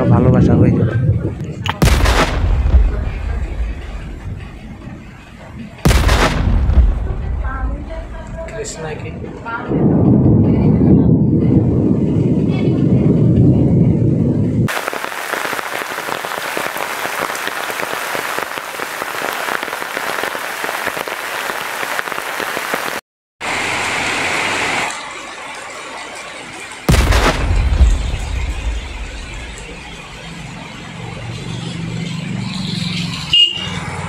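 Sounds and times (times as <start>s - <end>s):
loud low rumble: 1.1s - 14.7s, 26.9s - 30.3s
heavy rain hissing: 1.8s - 9.6s, 14.7s - 31.4s.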